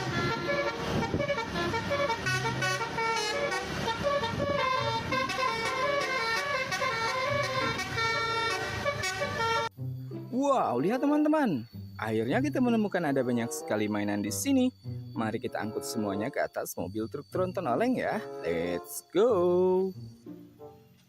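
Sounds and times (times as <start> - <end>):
multi-tone horn playing tune: 0.0 - 9.8.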